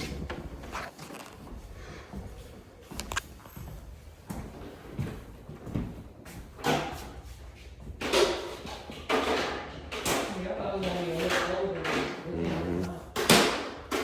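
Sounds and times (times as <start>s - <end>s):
objects knocking and scraping: 7.8s - 14.0s.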